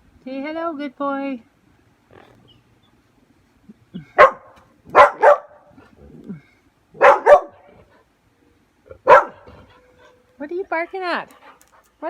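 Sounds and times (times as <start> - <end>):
dog barking: 4.2 - 5.7, 7.0 - 7.7, 9.0 - 9.7.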